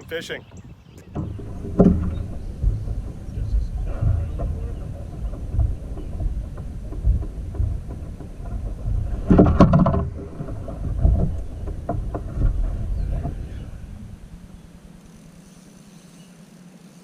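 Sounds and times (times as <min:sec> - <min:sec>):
wind buffeting microphone: 0:00.0 - 0:15.9
knocks and clatter on plastic: 0:00.5 - 0:15.2.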